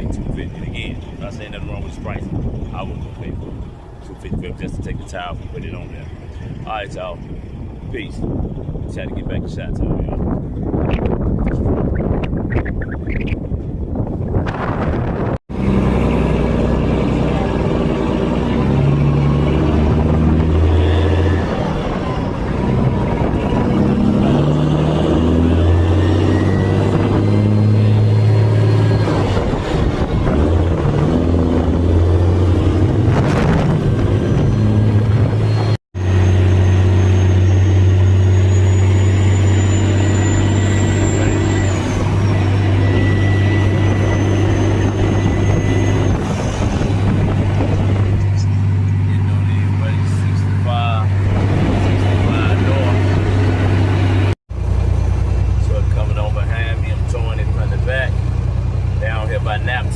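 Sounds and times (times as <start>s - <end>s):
road and wind noise: 0.0s - 59.9s
truck engine drone: 0.0s - 59.9s.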